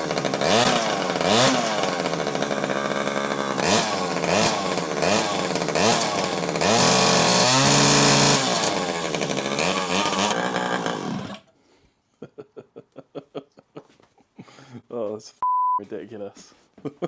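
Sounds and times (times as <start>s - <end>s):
two-stroke engine revving: 0.0s - 11.4s.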